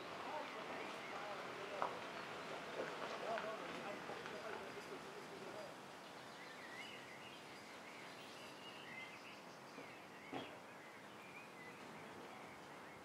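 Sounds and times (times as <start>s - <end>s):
small birds chirping: 4.2s - 13.0s.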